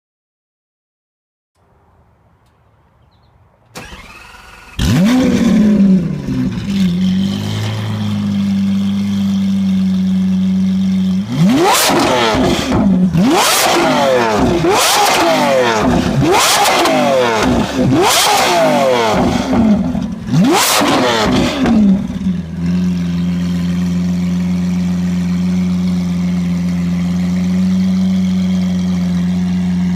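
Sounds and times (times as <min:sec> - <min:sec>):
car engine idling: 0:03.6 - 0:29.9
sports car engine starting: 0:03.6 - 0:29.9
car engine revving sharply: 0:03.7 - 0:08.9, 0:11.2 - 0:22.7.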